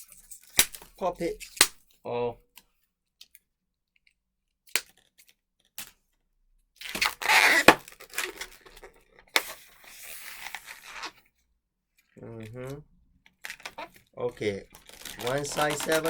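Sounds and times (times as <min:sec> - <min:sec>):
balloon bubble popping crack: 0:01.6 - 0:01.8, 0:06.8 - 0:08.1
rubber balloon stretching: 0:06.9 - 0:08.6, 0:14.6 - 0:16.0.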